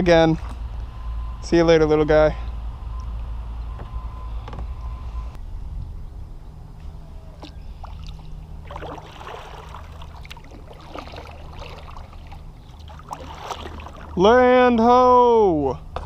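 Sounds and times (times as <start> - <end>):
low steady hum: 0.0 - 16.0
water splashing and dripping: 7.4 - 14.2
kayak paddle strokes in water: 7.8 - 14.2.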